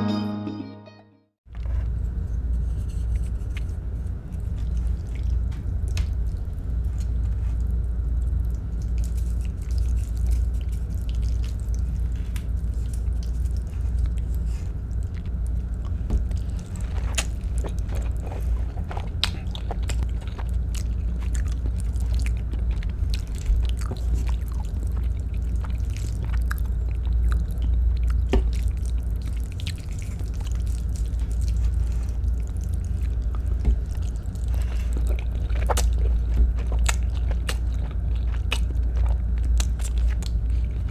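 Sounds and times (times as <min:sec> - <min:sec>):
steady low hum: 0:01.5 - 0:40.9
person chewing food: 0:03.0 - 0:40.9
wet mouth sounds: 0:15.0 - 0:40.9.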